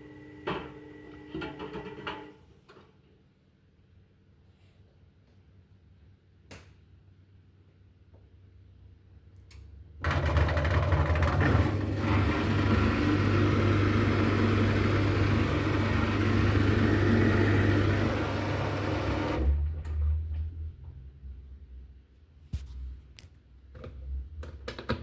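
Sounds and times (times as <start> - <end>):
washing machine spinning: 0.0 - 2.3, 10.0 - 20.2.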